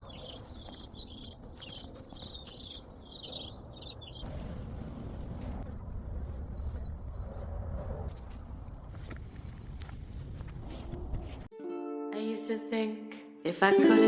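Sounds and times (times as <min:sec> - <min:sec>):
bird chirping: 0:00.0 - 0:04.3, 0:05.7 - 0:10.3.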